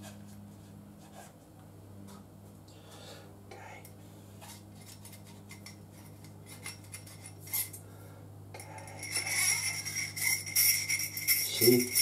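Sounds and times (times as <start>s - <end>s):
metal parts clinking and rubbing: 4.8s - 7.8s, 8.6s - 12.0s
metallic jangling and ringing: 5.5s - 7.8s, 8.6s - 12.0s.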